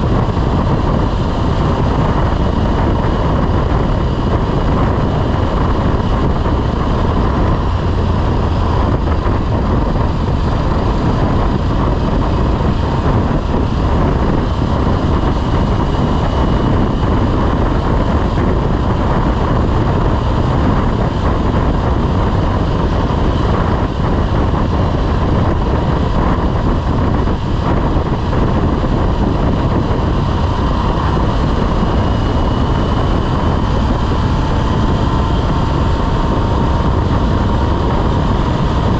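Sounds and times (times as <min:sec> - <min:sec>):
faint engine whine: 0:00.0 - 0:38.9
motorcycle engine running: 0:00.0 - 0:38.9
wind rush on microphone: 0:00.0 - 0:38.9.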